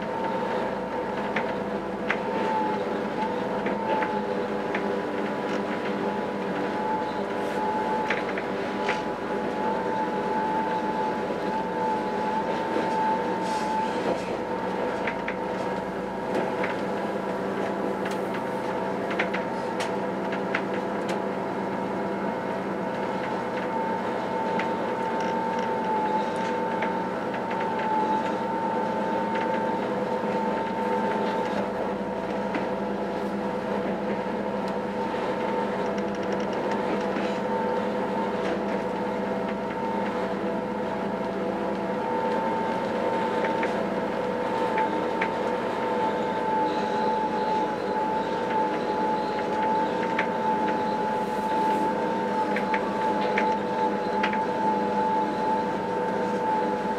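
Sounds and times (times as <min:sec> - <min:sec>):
railcar running hum: 0:00.0 - 0:56.9
wavering whine: 0:41.9 - 0:56.9.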